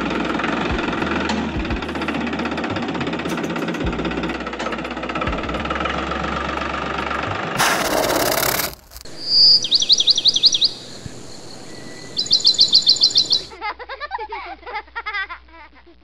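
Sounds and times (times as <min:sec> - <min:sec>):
bird quick falling chirps: 0:09.1 - 0:10.8
bird soft warbling call: 0:09.1 - 0:13.5.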